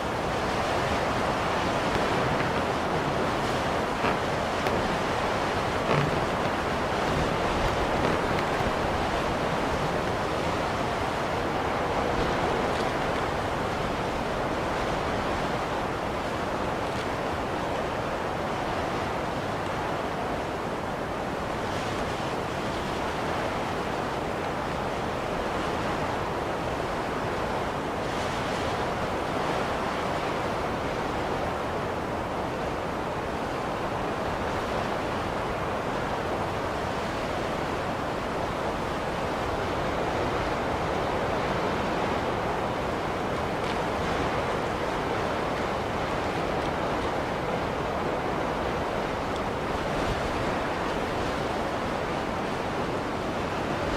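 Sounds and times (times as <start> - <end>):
blizzard wind rushing: 0.0 - 16.6.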